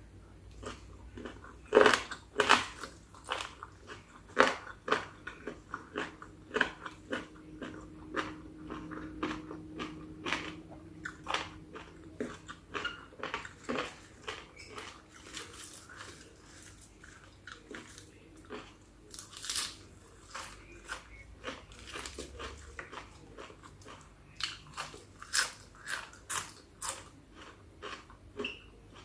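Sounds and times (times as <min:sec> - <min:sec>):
wet chewing: 0:00.5 - 0:18.8
crunchy bites: 0:00.6 - 0:16.5.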